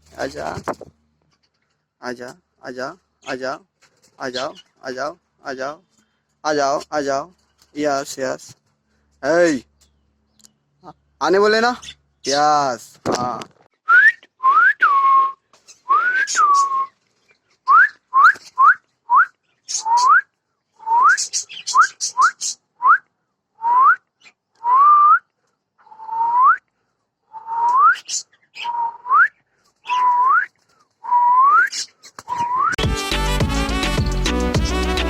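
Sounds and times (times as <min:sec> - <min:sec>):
upward sliding whistled notes: 0:32.3 - 0:32.8.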